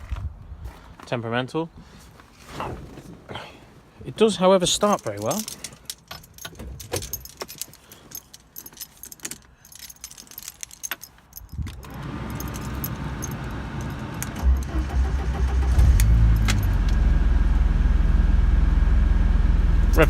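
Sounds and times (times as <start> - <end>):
keys jangling: 4.8 - 15.0, 16.0 - 17.0
car engine starting and idling: 11.8 - 20.0.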